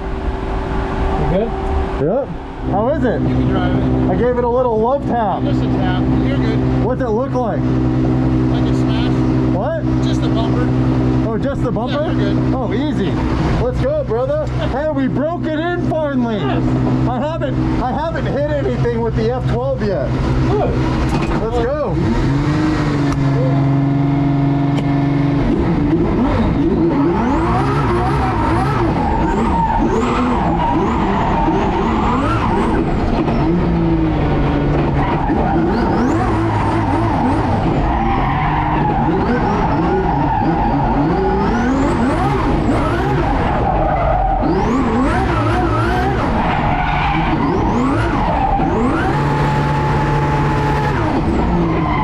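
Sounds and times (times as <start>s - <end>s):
sports car engine revving: 0.0s - 52.0s
tyres squealing: 26.8s - 33.8s, 34.8s - 49.6s.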